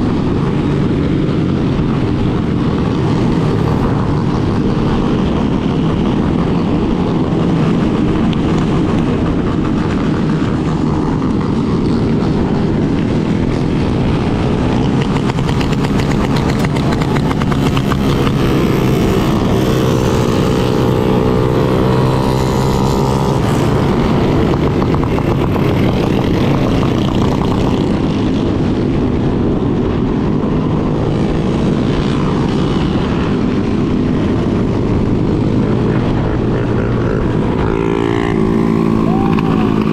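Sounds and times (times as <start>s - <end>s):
motorcycle engine running: 0.0s - 39.9s
second engine rising and falling: 33.7s - 39.9s.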